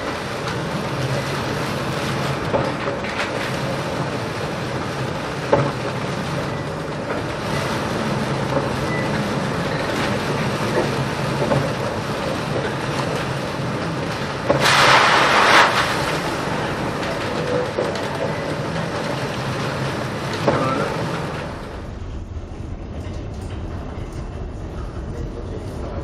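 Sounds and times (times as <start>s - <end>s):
wave spray striking: 14.6s - 17.4s.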